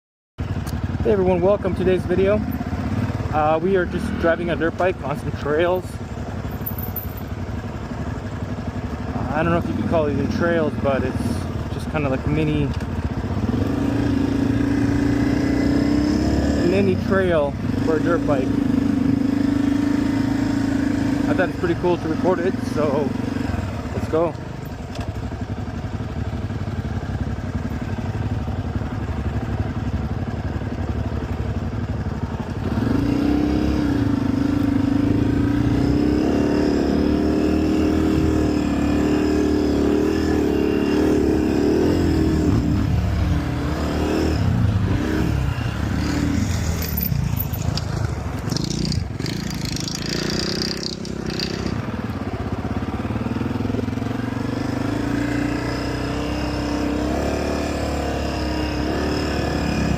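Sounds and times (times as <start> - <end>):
dirt bike engine revving: 0.9 - 5.8, 9.1 - 24.4, 32.5 - 59.9.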